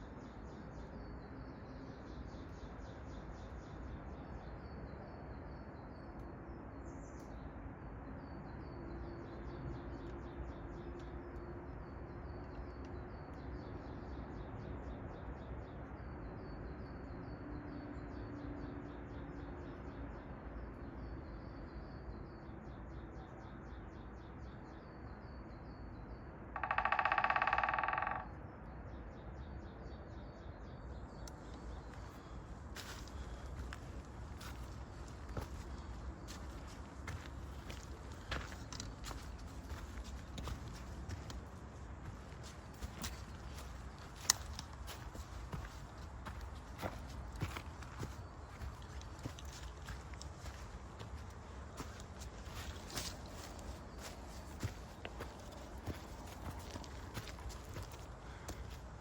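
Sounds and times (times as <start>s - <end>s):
songbirds calling: 19.8s - 59.0s
low hiss of wet forest: 31.3s - 59.0s.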